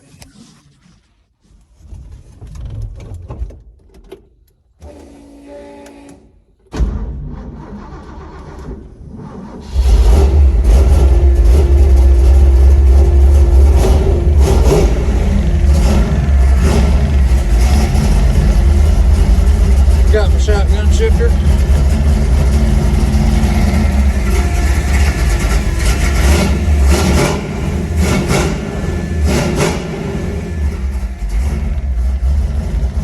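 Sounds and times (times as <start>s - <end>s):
car engine cranking: 7.1s - 33.0s
car engine rumbling: 7.3s - 33.0s.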